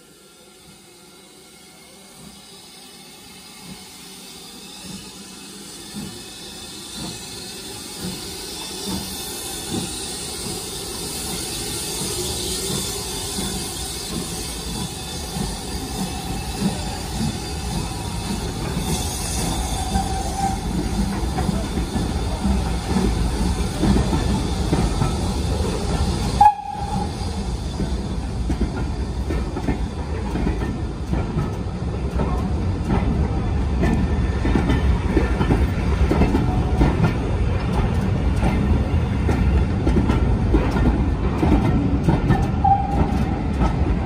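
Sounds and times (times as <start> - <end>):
train wheels rumbling on rail: 0.0 - 44.0
high wheel squeals: 1.2 - 22.9.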